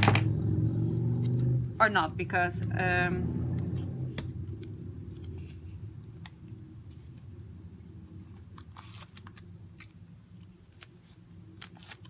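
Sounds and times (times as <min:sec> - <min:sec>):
steady low hum: 0:00.0 - 0:12.0
packaging clicks and crinkles: 0:08.5 - 0:12.0.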